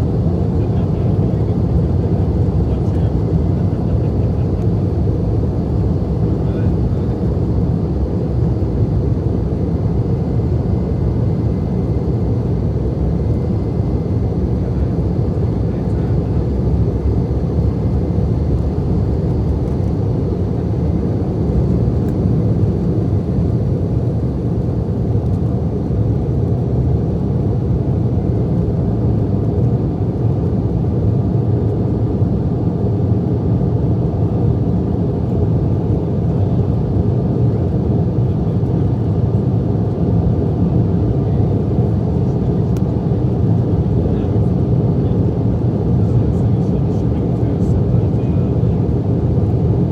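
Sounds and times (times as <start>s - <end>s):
airliner cabin engine rumble: 0.0s - 49.9s.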